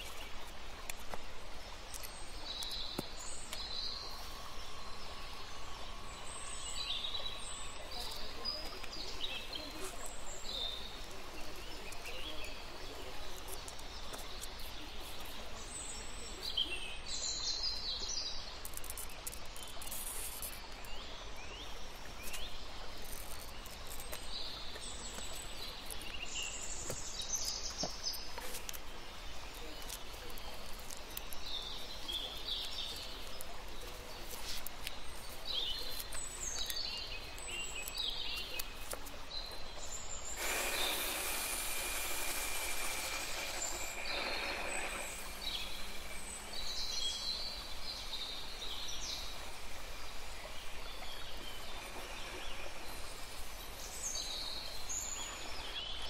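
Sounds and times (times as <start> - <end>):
birds chirping: 0.0 - 56.0
steady background hiss: 0.0 - 56.0
glass grinder whirring: 40.4 - 46.4, 51.6 - 53.5.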